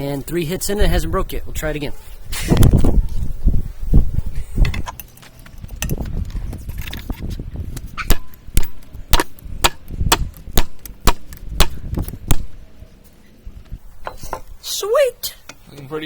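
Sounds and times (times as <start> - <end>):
hammer striking steel on anvil: 8.1 - 12.6.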